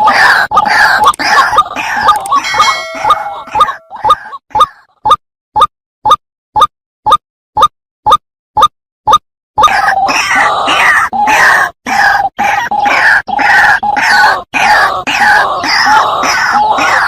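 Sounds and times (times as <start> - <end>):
waterhen harsh croaking calls: 0.0 - 4.7, 9.6 - 17.0.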